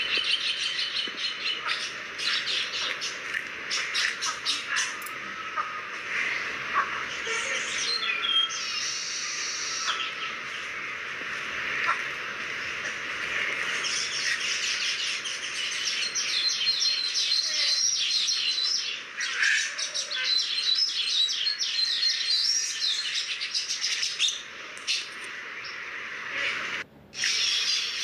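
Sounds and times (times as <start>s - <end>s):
birds chirping and twittering: 0.0s - 28.0s.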